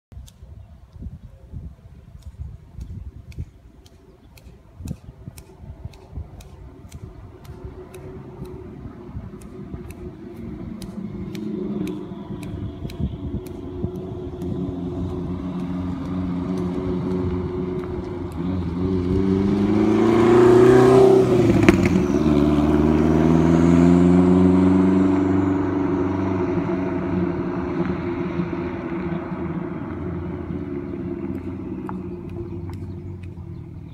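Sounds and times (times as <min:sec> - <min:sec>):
car engine passing by: 0:06.8 - 0:33.9.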